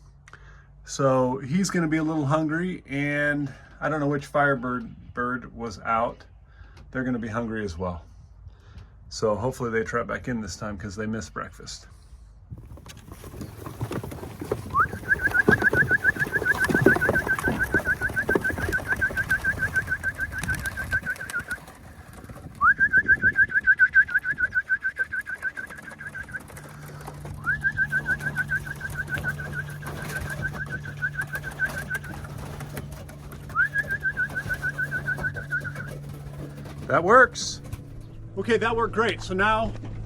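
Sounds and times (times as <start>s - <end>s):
trilling whistle: 14.7s - 21.7s, 22.5s - 32.6s, 33.5s - 36.1s.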